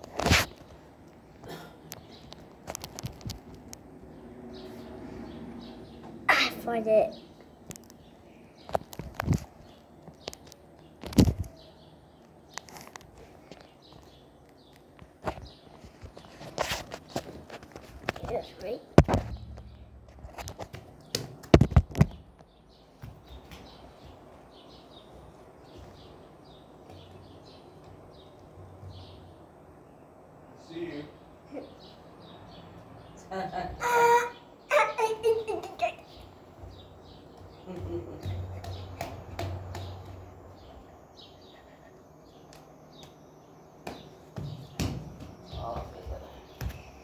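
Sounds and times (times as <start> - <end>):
birds chirping faintly: 0.0 - 47.0
steady background hum: 0.0 - 47.0
low hum: 19.0 - 21.1
sharp knocks: 19.0 - 22.2, 37.8 - 40.2.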